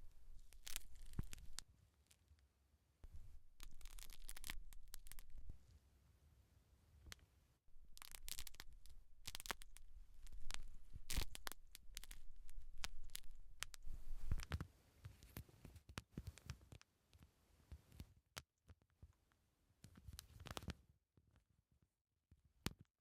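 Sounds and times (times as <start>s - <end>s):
hair crackling and scratching: 0.0s - 1.7s, 3.0s - 5.6s, 7.7s - 14.6s.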